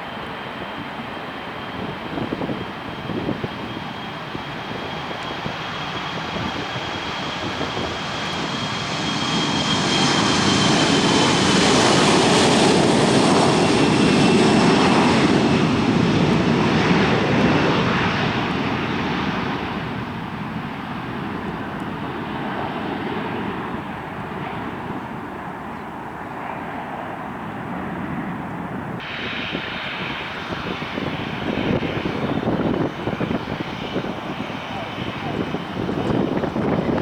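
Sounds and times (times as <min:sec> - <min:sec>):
jet engines at takeoff power: 0:00.0 - 0:37.0
high jet whine falling in pitch: 0:28.8 - 0:37.0.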